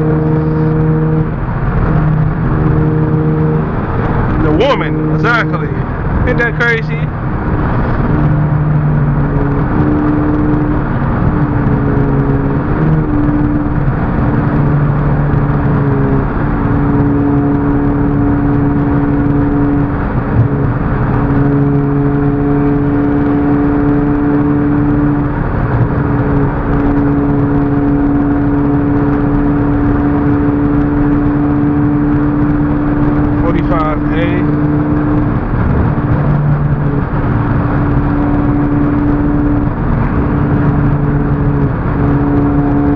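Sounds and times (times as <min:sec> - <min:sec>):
car engine droning: 0:00.0 - 0:42.9
road and tyre noise: 0:00.0 - 0:42.9.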